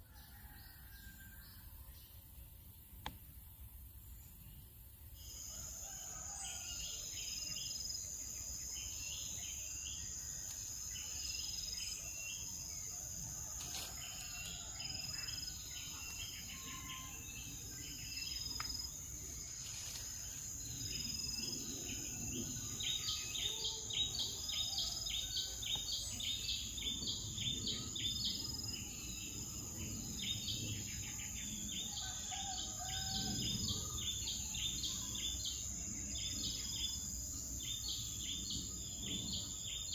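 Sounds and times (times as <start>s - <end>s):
high-pitched insect drone: 13.6s - 24.7s.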